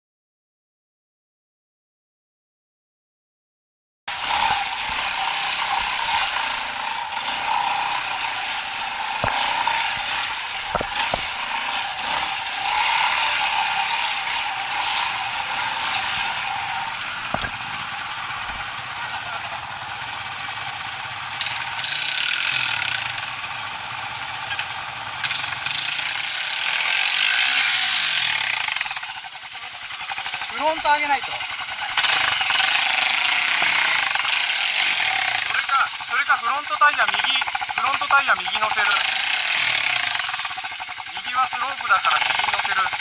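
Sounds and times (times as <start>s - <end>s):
motorcycle engine running: 4.1s - 43.0s
sharp knocks: 9.1s - 11.7s, 17.3s - 18.7s.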